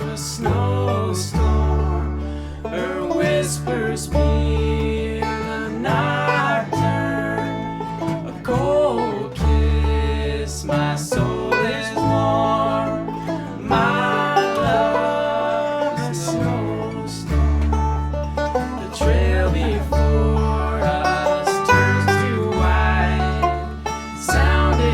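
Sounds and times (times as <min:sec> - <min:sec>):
banjo: 0:00.0 - 0:24.9
bass line: 0:00.0 - 0:24.9
guitar: 0:00.0 - 0:24.9.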